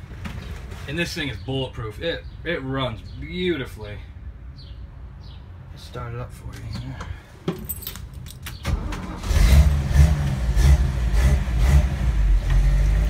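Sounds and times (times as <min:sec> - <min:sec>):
engine starting and idling: 0:08.5 - 0:11.9.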